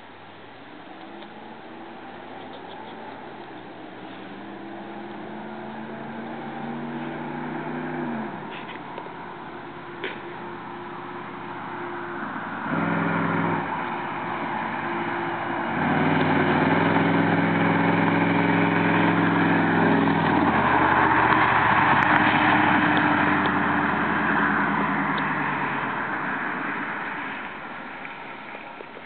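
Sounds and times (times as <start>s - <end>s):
engine idling and revving: 0.0s - 28.2s.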